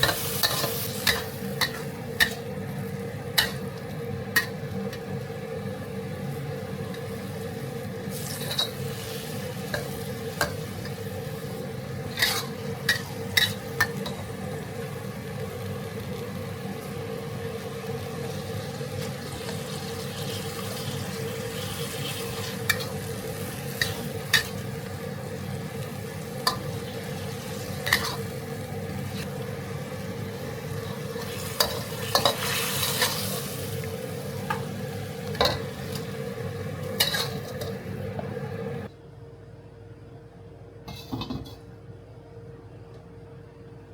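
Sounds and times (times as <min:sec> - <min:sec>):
steady hum: 0:00.0 - 0:32.4, 0:33.3 - 0:43.9
stir-fry sizzling in a pan: 0:00.0 - 0:38.9
spatula scraping a pan: 0:12.1 - 0:13.6.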